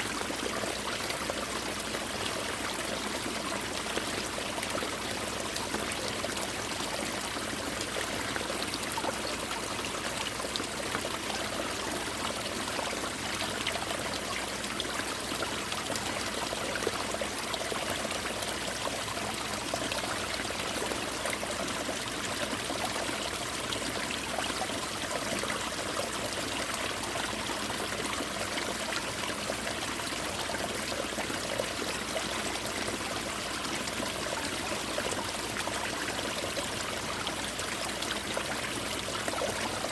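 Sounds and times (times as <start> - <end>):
stream running water: 0.0 - 39.9.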